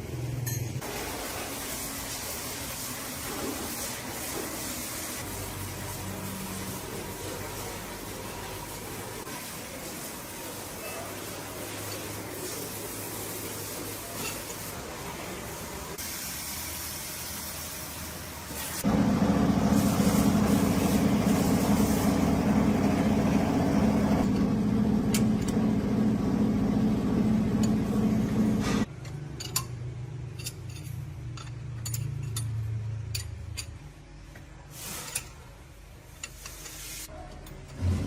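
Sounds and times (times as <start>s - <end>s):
machine running loudly: 18.8s - 28.9s
low hum: 18.9s - 28.9s.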